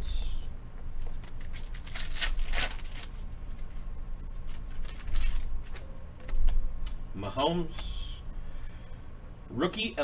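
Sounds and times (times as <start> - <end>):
trading cards rustling: 1.0 - 6.6.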